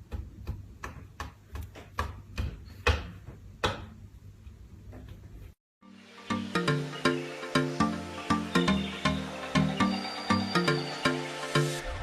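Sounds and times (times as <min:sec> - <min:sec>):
sharp taps and knocks: 0:00.0 - 0:04.0.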